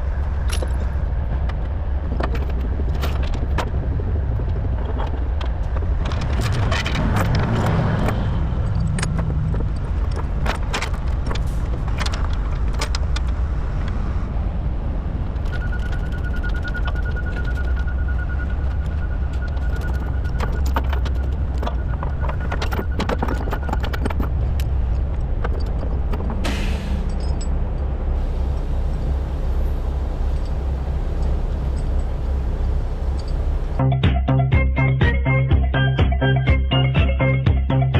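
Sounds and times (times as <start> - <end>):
sharp clicks and knocks: 4.4 - 13.4, 18.7 - 33.8
diesel engine running: 7.0 - 33.9
thin high tone: 28.2 - 33.8.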